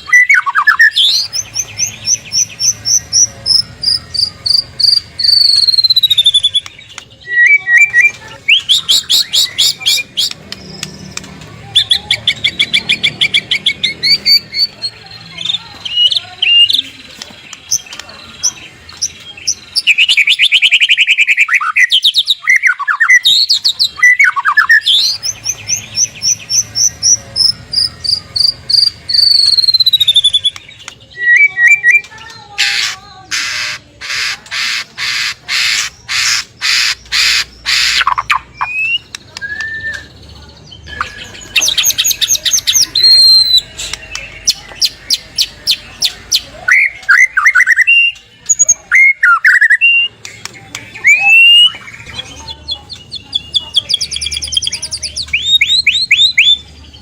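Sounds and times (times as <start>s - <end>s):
bird singing whistles and trills: 0.0s - 11.0s, 19.0s - 32.1s, 37.0s - 56.7s
harsh repeated bird notes: 0.0s - 57.0s.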